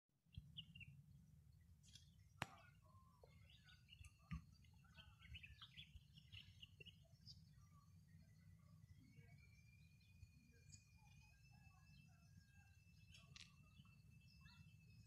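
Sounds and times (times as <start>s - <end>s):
small birds chirping: 0.3s - 15.0s.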